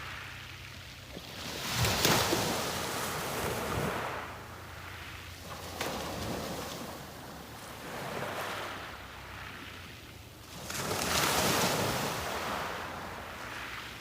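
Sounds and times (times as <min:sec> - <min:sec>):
sea waves breaking on beach: 0:00.0 - 0:14.0.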